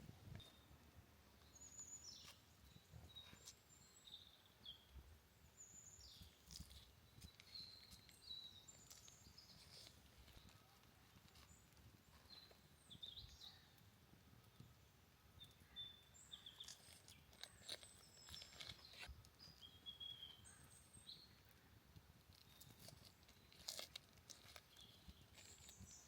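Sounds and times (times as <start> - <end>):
soft crunching clicks: 6.1 - 12.6, 16.4 - 19.7, 21.4 - 26.0.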